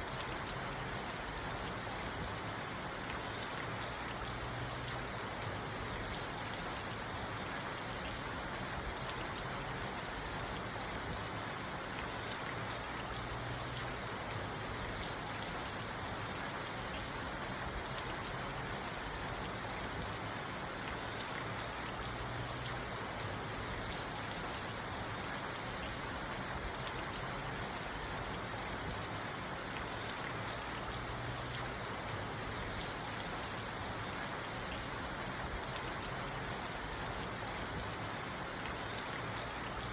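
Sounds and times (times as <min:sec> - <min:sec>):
rain on car roof: 0:00.0 - 0:39.9.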